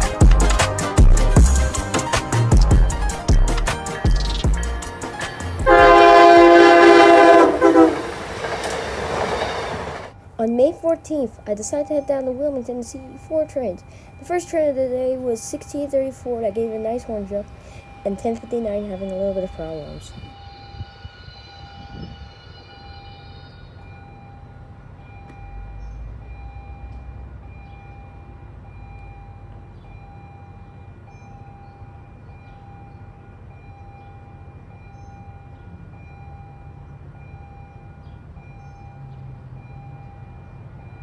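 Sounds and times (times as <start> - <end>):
diesel locomotive rumbling: 1.2 - 41.0
train horn chord: 5.6 - 10.1.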